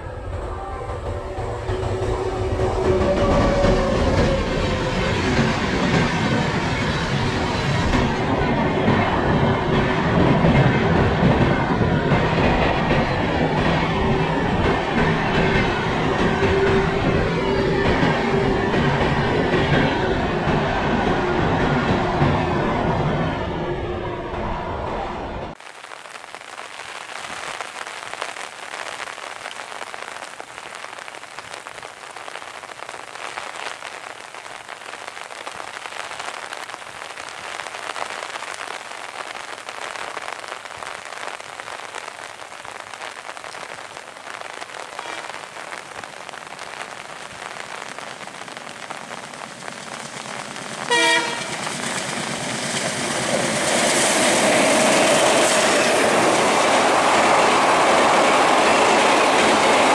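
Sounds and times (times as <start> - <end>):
train running noise: 0.0 - 25.6, 50.9 - 59.9
rain hissing: 0.0 - 59.9
diesel locomotive horn blast: 45.0 - 45.4, 50.9 - 51.7.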